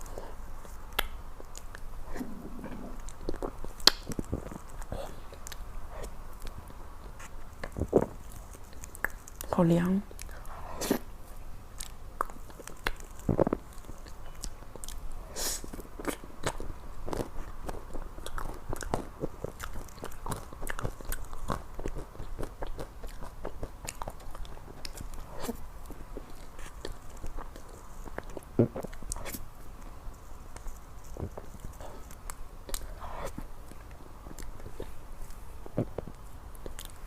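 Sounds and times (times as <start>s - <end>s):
person chewing ice cream cake: 0.0s - 37.0s.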